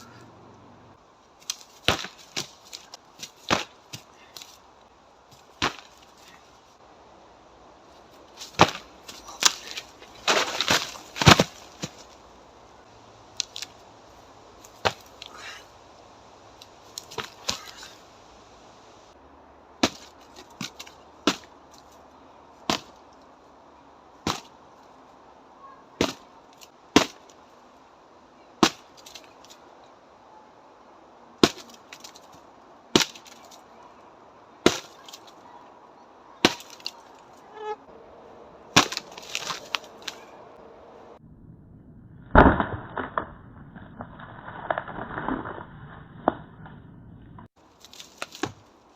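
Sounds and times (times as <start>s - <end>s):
wood cracking: 8.3s - 12.3s, 28.6s - 29.8s, 31.4s - 33.8s, 34.6s - 35.5s, 36.4s - 37.7s, 38.7s - 40.4s, 47.6s - 48.9s.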